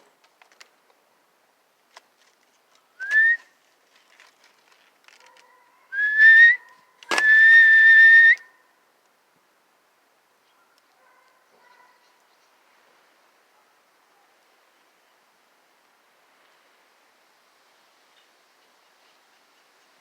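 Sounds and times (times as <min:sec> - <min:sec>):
person whistling bird calls: 0:03.0 - 0:03.5, 0:06.0 - 0:08.5.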